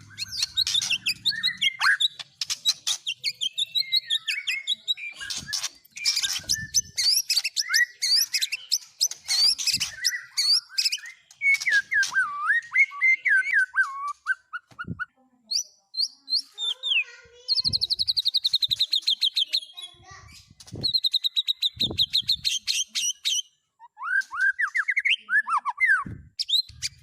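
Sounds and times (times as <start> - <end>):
rapid high bird trill: 0.0 - 12.1
songbird chirps and whistles: 0.0 - 27.0.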